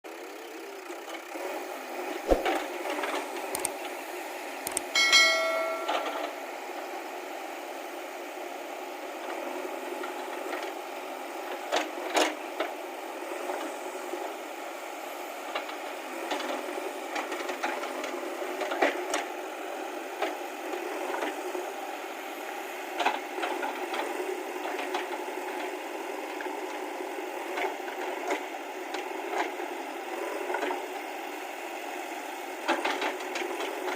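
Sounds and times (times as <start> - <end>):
metallic knocks and clanks: 5.0 - 6.4
ringing metal clang: 5.0 - 6.4.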